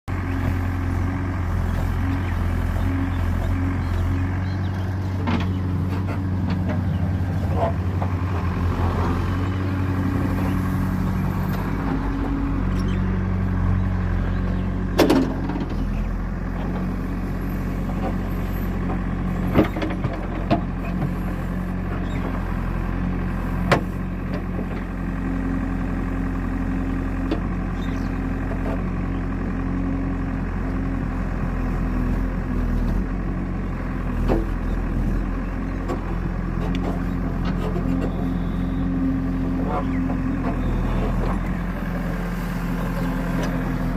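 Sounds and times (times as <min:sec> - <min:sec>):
digger diesel engine running: 0:00.0 - 0:43.9
sharp knocks of digging equipment: 0:14.9 - 0:15.8.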